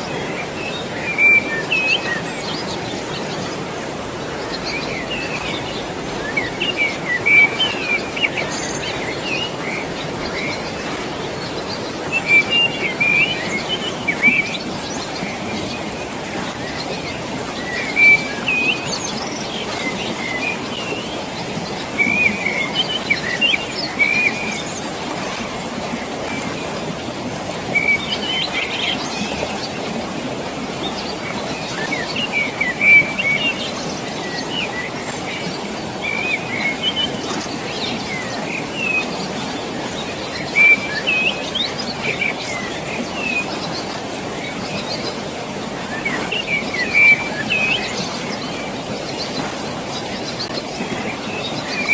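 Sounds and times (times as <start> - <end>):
flowing water rushing: 0.0 - 51.9
small birds chirping: 0.0 - 51.9.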